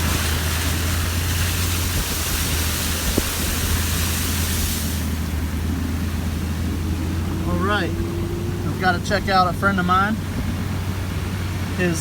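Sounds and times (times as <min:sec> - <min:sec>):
loud even hiss: 0:00.0 - 0:05.3
car engine and road hum: 0:00.0 - 0:12.0.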